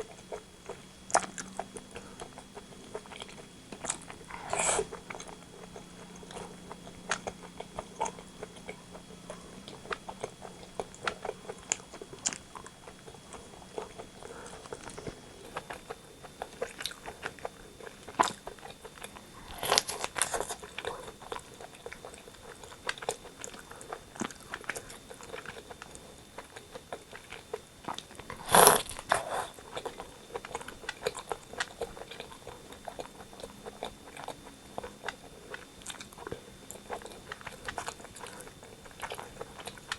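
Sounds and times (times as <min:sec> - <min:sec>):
chewing with wet clicks: 0:00.0 - 0:39.9
loud tearing bites: 0:28.4 - 0:29.3.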